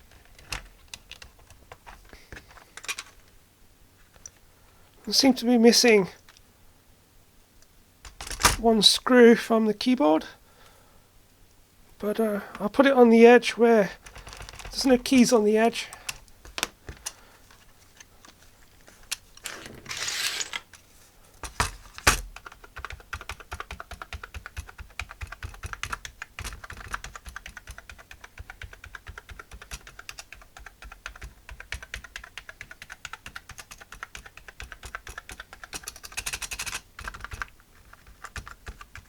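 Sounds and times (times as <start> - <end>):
plastic keyboard keys clicking: 0.1 - 3.1, 14.0 - 15.3, 21.4 - 39.0.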